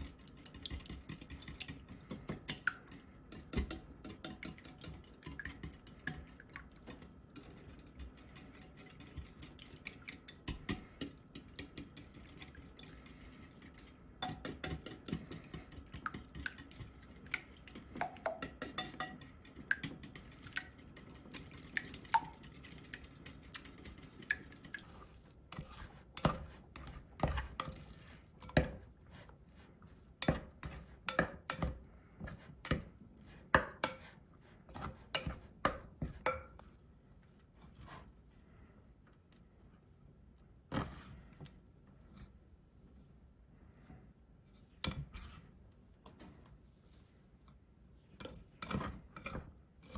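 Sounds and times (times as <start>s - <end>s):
utensil stirring and knocking a pan: 0.0s - 36.8s, 48.2s - 49.9s.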